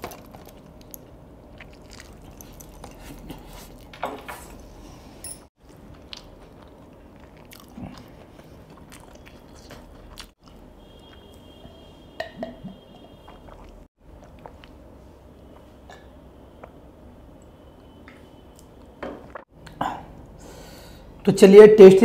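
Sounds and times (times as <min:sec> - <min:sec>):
chewing noodles: 0:01.5 - 0:03.9, 0:05.6 - 0:11.4.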